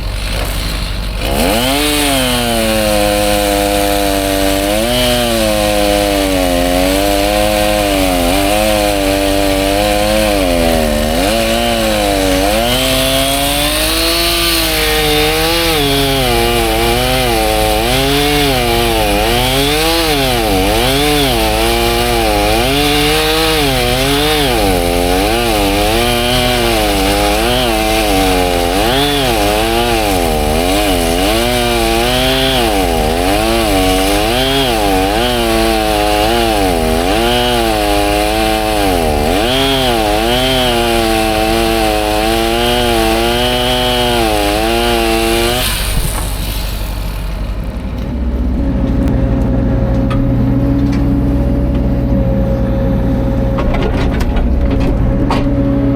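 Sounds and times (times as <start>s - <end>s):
chainsaw cutting wood: 0.0s - 49.2s
low steady engine hum: 45.9s - 55.9s.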